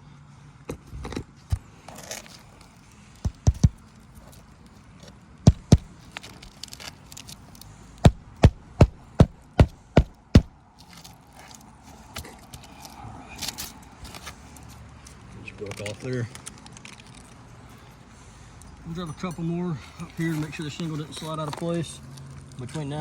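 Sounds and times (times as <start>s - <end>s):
hammer striking roofing nails: 3.2s - 3.8s, 5.5s - 6.0s, 8.0s - 10.6s.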